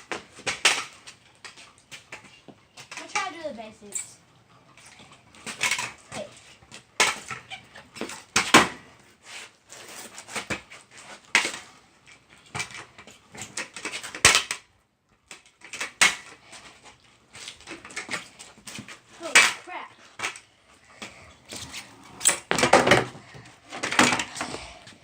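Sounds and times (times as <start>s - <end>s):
scooter rattling: 15.4s - 25.0s
scooter knocking on ground: 22.4s - 24.4s.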